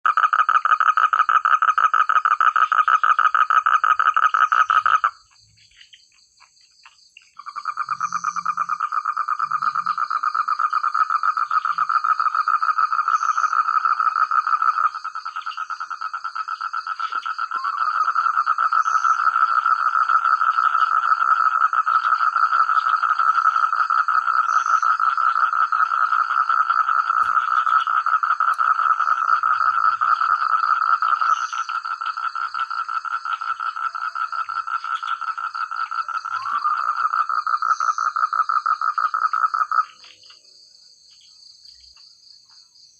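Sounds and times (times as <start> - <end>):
frogs croaking: 0.0 - 42.9.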